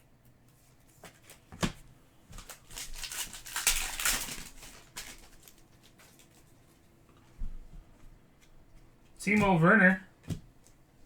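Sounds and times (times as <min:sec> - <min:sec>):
wrapper crinkling as torn open: 0:02.4 - 0:06.5.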